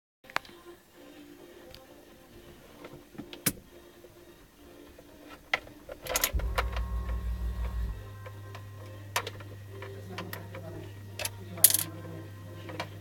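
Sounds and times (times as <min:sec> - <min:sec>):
sharp electrical clicks: 0:06.0 - 0:11.9
low electrical hum: 0:06.3 - 0:13.0.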